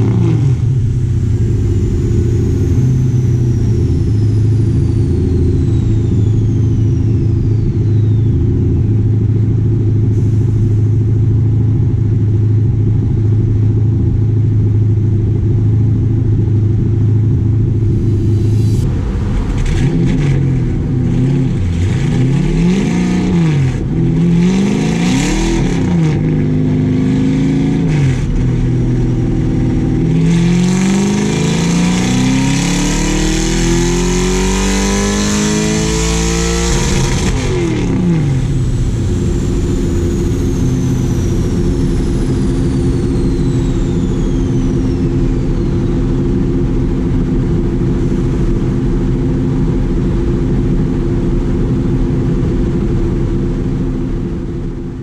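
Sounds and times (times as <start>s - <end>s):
race car engine revving: 0.0s - 11.0s, 17.2s - 49.4s
high whine: 0.0s - 55.0s.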